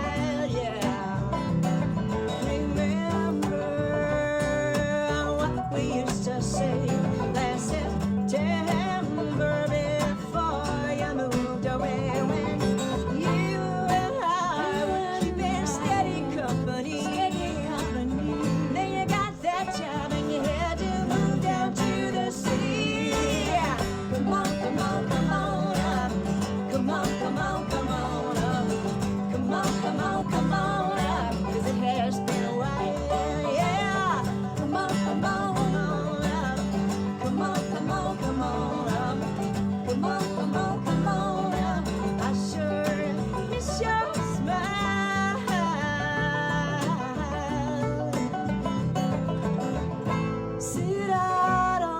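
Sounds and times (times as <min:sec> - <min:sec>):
bass line: 0:00.0 - 0:51.9
plucked guitar strings: 0:00.0 - 0:51.9
singing: 0:02.3 - 0:47.6.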